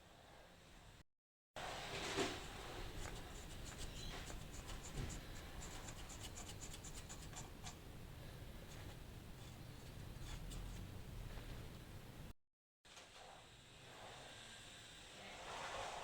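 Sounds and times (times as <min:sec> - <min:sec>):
hand tools scraping metal: 0:09.4 - 0:10.9.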